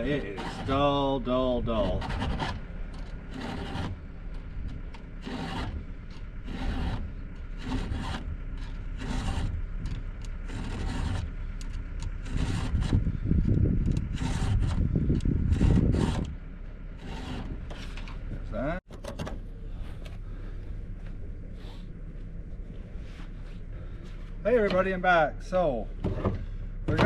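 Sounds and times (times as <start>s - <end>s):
file scraping chainsaw chain: 0.0s - 0.8s, 1.9s - 4.4s, 5.2s - 13.0s, 13.9s - 16.3s, 17.0s - 18.0s
low rumble: 0.0s - 27.0s.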